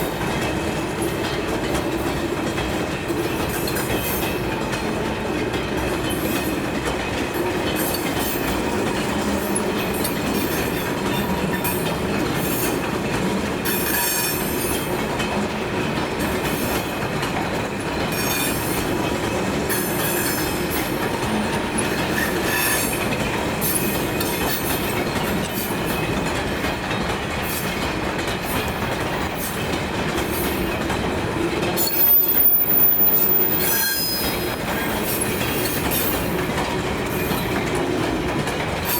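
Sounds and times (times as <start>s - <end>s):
train rumbling past: 0.0s - 38.9s
train wheels squealing: 13.6s - 15.0s, 17.8s - 26.1s, 31.7s - 37.7s.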